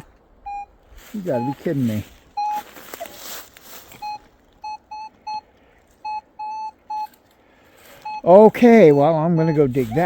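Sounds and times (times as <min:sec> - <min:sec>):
metal detector beeping: 0:00.0 - 0:10.0
rustling: 0:00.9 - 0:04.8.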